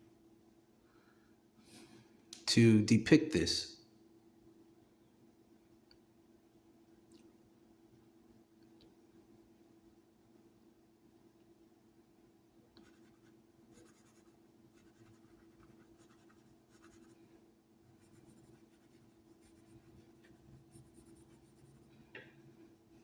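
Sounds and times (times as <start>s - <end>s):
pen scratching on paper: 12.8s - 17.2s, 18.0s - 21.9s.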